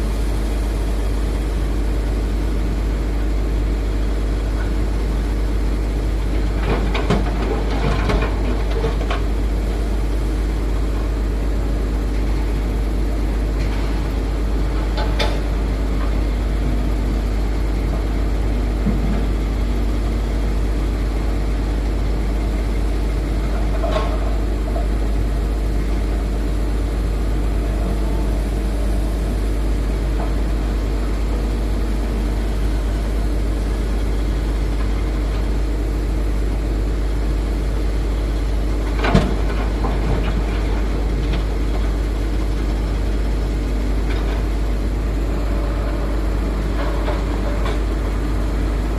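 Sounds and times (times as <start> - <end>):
diesel excavator running: 0.0 - 48.9.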